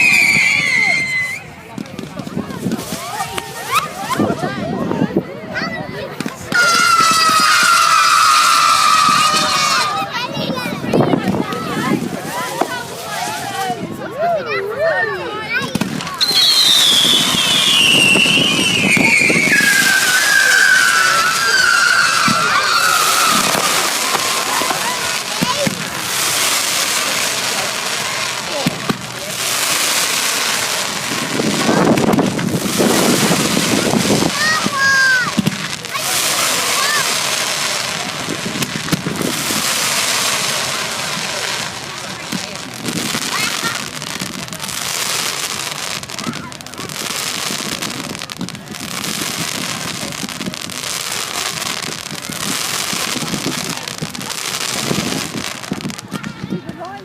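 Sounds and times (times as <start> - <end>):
fireworks crackling: 0.0 - 57.0
sharp firework bangs: 15.6 - 56.5.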